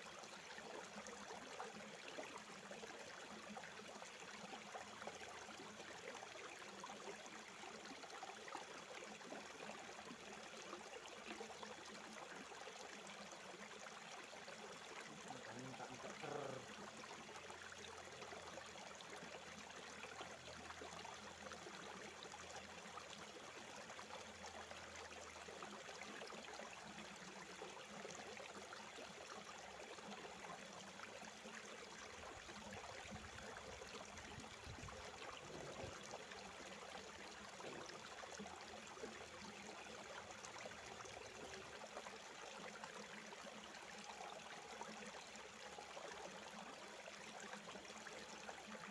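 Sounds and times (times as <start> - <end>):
river water flowing over rocks: 0.0 - 48.9.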